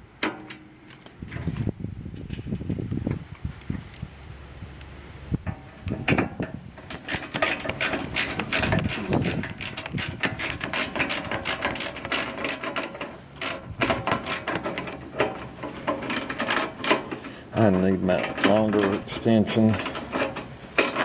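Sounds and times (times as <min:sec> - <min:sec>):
socket ratchet clicking: 0:07.0 - 0:14.7.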